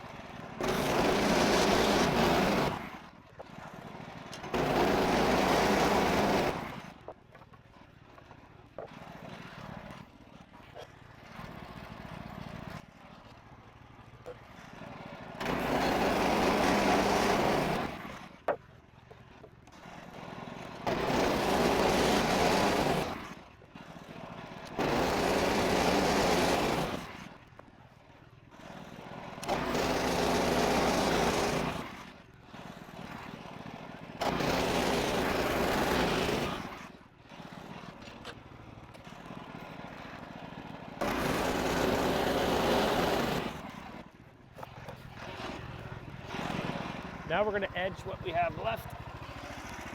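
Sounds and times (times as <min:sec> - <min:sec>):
sawmill engine running: 0:00.0 - 0:03.0, 0:03.6 - 0:07.5, 0:14.2 - 0:18.5, 0:19.1 - 0:23.4, 0:24.0 - 0:27.3, 0:28.6 - 0:49.9
band saw cutting log: 0:00.6 - 0:02.9, 0:04.4 - 0:06.9, 0:15.4 - 0:18.2, 0:20.0 - 0:23.3, 0:24.6 - 0:27.2, 0:29.4 - 0:32.0, 0:34.2 - 0:36.9, 0:41.0 - 0:49.9.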